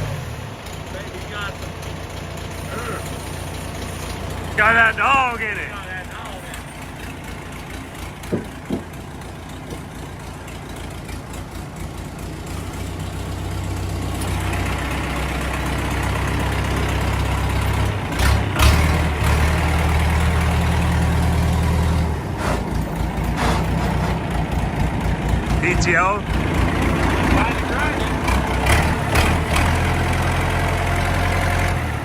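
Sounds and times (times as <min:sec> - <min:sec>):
diesel tractor engine running: 0:00.0 - 0:32.0
short knocks: 0:08.2 - 0:08.9.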